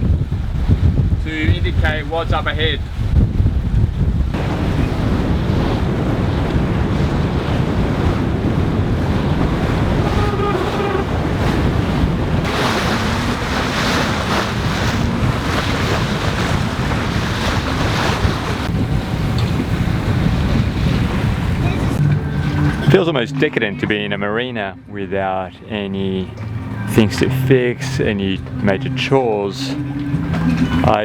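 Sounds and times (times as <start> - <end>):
wind buffeting microphone: 0.0 - 23.0
water rushing along hull: 0.0 - 31.0
hissing wash of water: 4.4 - 11.6, 12.4 - 19.2.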